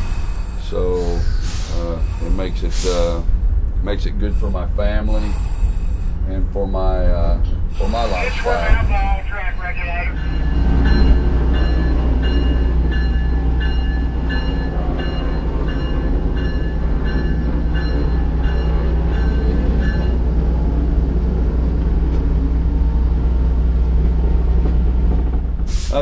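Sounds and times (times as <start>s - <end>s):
diesel locomotive engine rumble: 0.0s - 26.0s
locomotive bell ringing: 7.8s - 20.8s.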